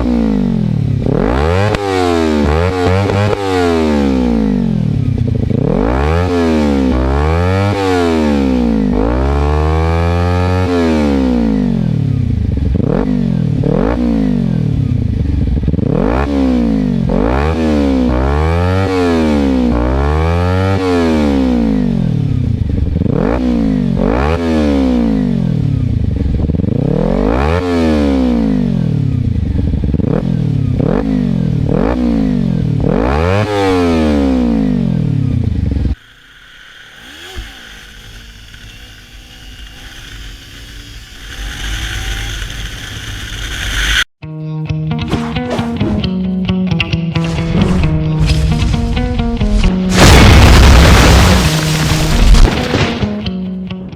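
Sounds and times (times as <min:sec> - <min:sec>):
motorcycle engine revving: 0:00.0 - 0:44.2, 0:44.9 - 0:53.9.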